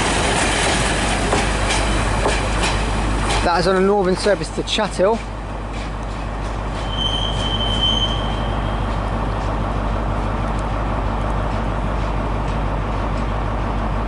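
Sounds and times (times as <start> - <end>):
train diesel engines running: 0.0 - 14.0
high wheel squeal: 6.8 - 9.0.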